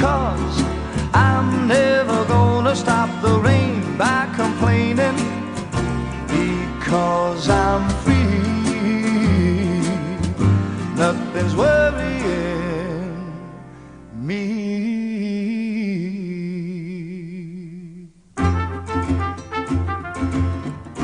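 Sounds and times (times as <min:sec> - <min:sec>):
man singing pop song: 0:00.0 - 0:05.6, 0:06.2 - 0:13.5, 0:14.1 - 0:18.2
guitar and band: 0:00.0 - 0:14.2, 0:18.4 - 0:21.0.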